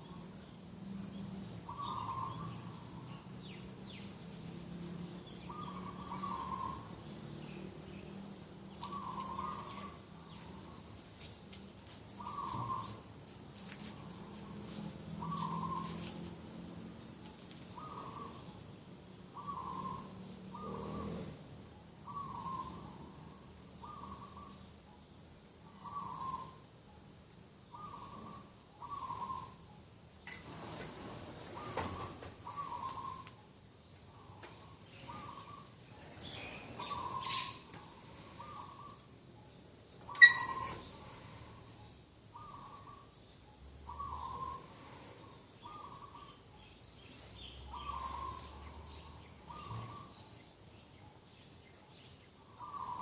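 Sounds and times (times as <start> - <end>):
doves cooing: 8.7 - 10.8, 12.2 - 13.0, 17.7 - 18.5, 19.4 - 24.5, 25.7 - 26.6, 27.7 - 29.6, 30.3 - 33.3, 34.1 - 39.2, 43.9 - 46.4, 47.7 - 50.2, 52.5 - 53.0
sharp high bird chirps: 30.3 - 30.7, 40.1 - 41.1.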